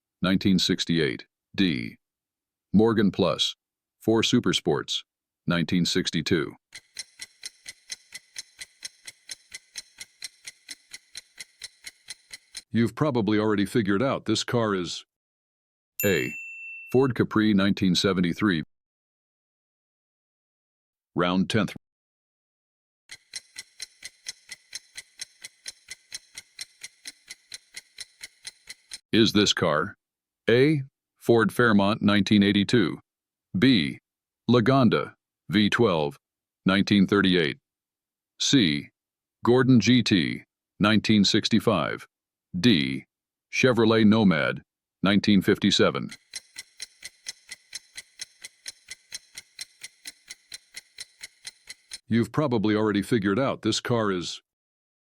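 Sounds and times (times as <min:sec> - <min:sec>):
clock ticking: 0:06.7 - 0:12.8, 0:23.1 - 0:29.0, 0:45.6 - 0:52.1.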